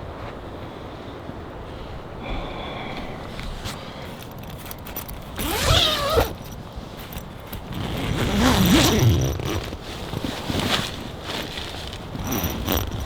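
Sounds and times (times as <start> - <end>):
zipper pulled: 3.6 - 13.0.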